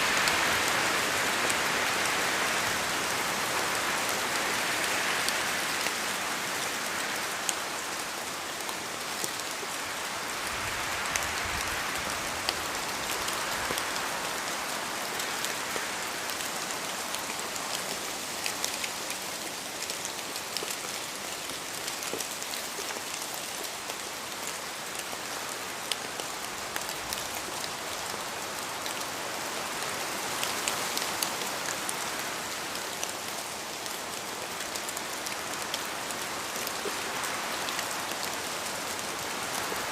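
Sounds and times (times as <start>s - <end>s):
rain falling in forest: 0.0s - 39.9s
wind: 0.0s - 39.9s.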